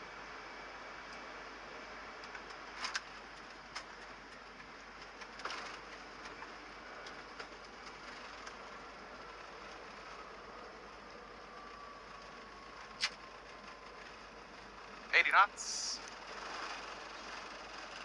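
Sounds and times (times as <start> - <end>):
rushing noise in cockpit: 15.1 - 16.1.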